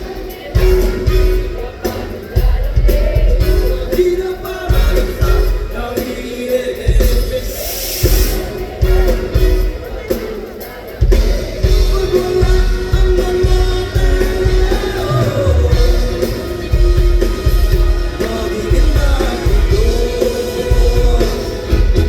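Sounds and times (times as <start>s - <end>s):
drums beat: 0.0s - 22.0s
guitar: 0.0s - 22.0s
lead singer singing: 0.0s - 22.0s
bass: 11.0s - 22.0s.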